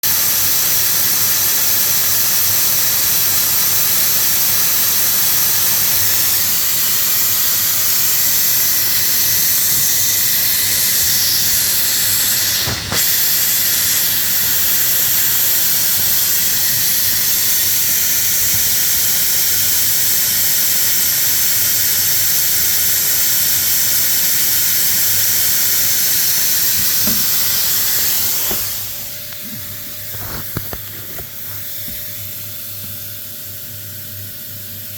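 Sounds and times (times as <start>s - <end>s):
hiss of rushing air: 5.6s - 30.3s.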